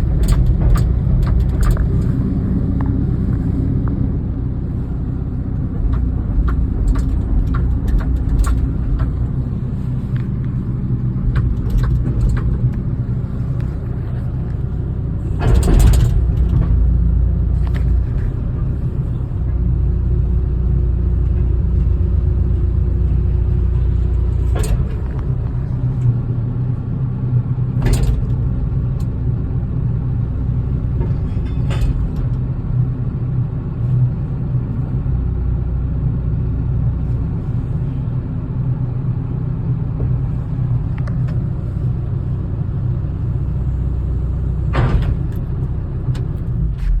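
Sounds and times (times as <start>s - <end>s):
heavy engine rumbling: 0.0s - 47.0s.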